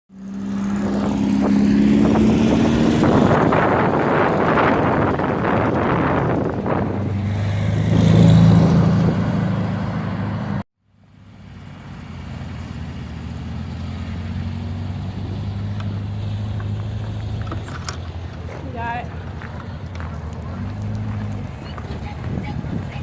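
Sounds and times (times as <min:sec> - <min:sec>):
wind noise on microphone: 0:00.5 - 0:09.5, 0:21.2 - 0:23.0.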